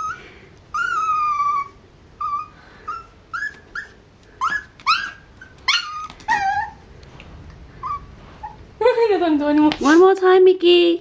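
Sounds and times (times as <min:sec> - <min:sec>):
small dog whimpering: 0:00.0 - 0:08.6.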